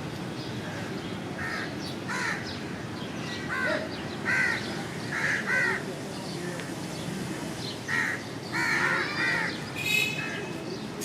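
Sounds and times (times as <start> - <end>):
harsh bird calls: 1.4 - 6.4, 7.7 - 10.9.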